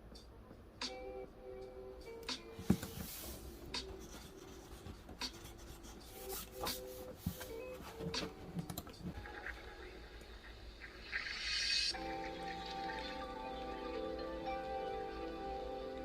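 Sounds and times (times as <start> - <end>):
pen scratching on paper: 3.0 - 7.5.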